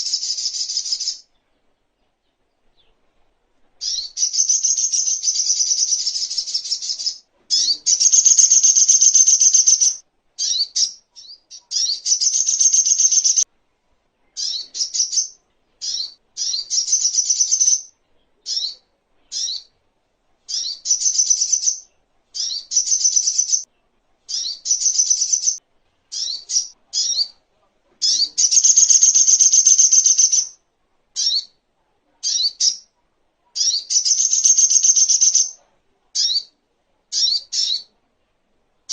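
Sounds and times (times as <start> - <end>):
bird chattering: 3.8 - 13.4, 14.4 - 17.9, 20.5 - 23.7, 24.3 - 27.4, 28.0 - 30.6, 33.6 - 35.6.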